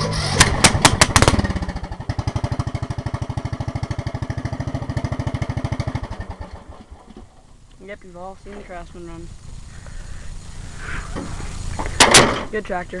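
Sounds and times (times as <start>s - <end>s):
small engine starting and running: 0.0s - 7.4s.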